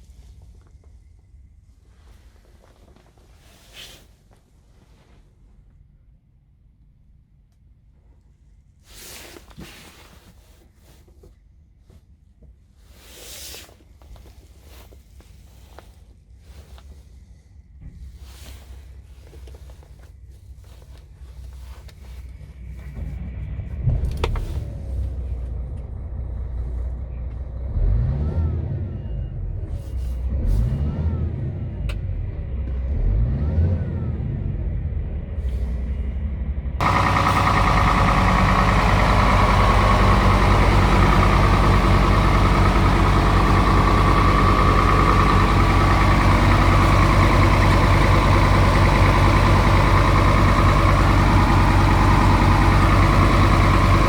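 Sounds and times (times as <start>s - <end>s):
diesel truck engine revving: 27.6s - 29.7s, 30.3s - 35.9s, 36.8s - 54.0s.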